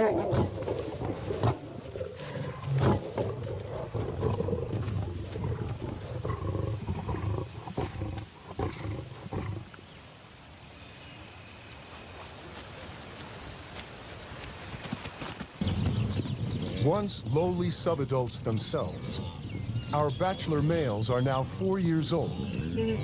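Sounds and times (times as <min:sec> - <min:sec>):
lions fighting: 0:00.0 - 0:09.8.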